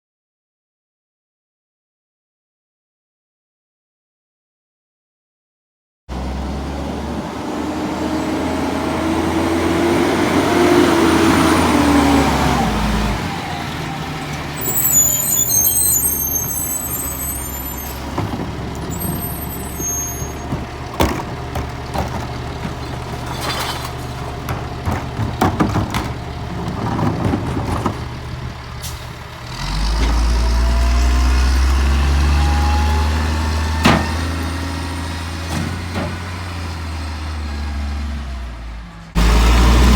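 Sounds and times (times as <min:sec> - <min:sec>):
truck diesel engine pulling away: 0:06.1 - 0:39.9
air brake hiss and squeal: 0:14.6 - 0:18.1, 0:18.9 - 0:20.5
knocks and clanks: 0:18.0 - 0:19.2, 0:20.4 - 0:28.6.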